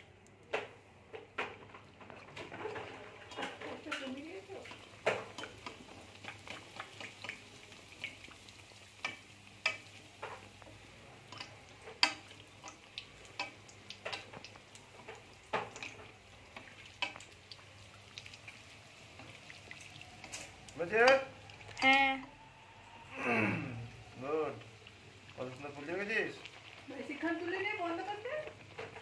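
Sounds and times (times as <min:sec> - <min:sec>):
faint sizzle of deep-frying: 0:00.0 - 0:29.0
metal spatula clicks on pan: 0:09.0 - 0:10.0, 0:11.3 - 0:14.6.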